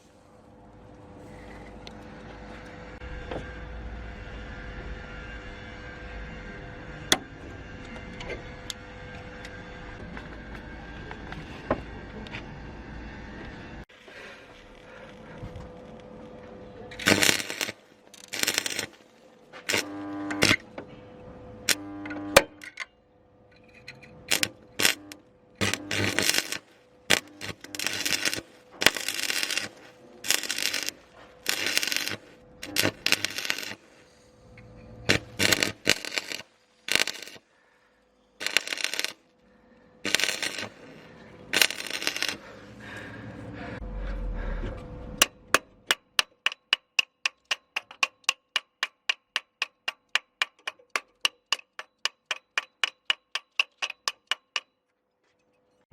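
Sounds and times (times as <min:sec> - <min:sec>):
metal scraping and clinking: 0:22.5 - 0:37.4, 0:40.0 - 0:42.6.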